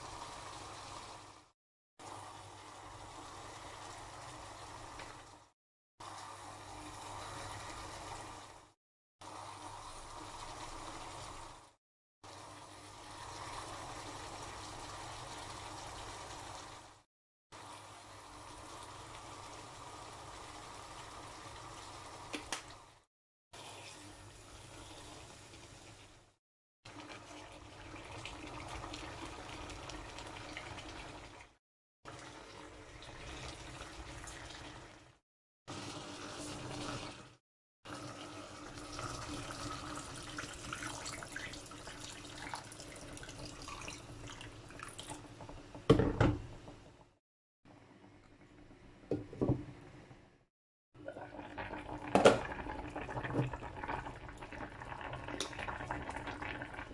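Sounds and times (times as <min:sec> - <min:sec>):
water running from tap into sink: 0:37.9 - 0:45.2.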